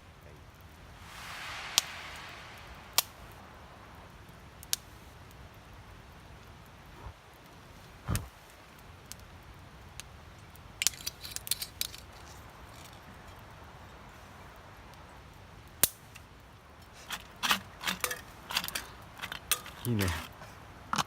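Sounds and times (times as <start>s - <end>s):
cutlery and cookware clinking: 17.4s - 20.3s.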